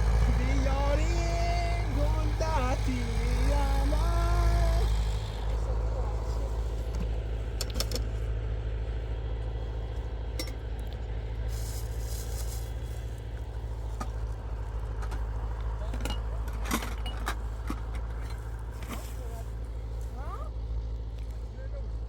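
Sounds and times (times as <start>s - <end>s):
vehicle engine running: 0.0s - 22.0s
light metallic clinks and rattles: 10.3s - 11.0s, 14.8s - 19.4s.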